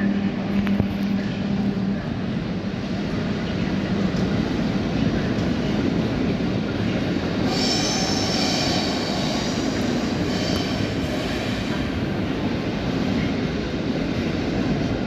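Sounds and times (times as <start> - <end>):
train rolling: 0.0 - 15.0
high metallic brake squeal: 7.5 - 11.7.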